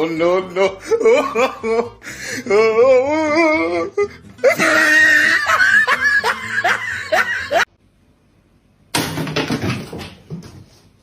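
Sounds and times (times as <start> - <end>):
background music: 0.0 - 7.7
person laughing: 0.4 - 7.7.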